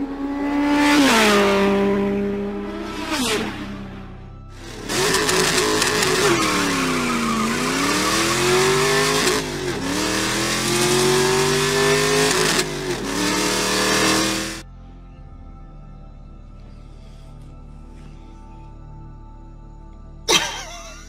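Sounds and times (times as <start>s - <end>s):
car engine revving: 0.0s - 14.6s
tire squeal: 5.1s - 9.5s.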